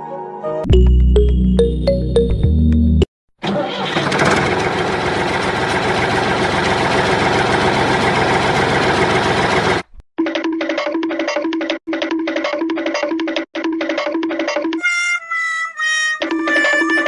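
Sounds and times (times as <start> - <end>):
motor engine running: 3.6 - 10.0.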